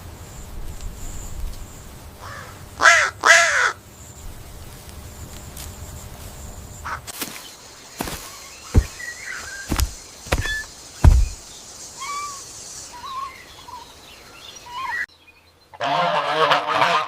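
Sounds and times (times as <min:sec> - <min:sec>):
bird giving harsh calls: 0:02.2 - 0:03.8.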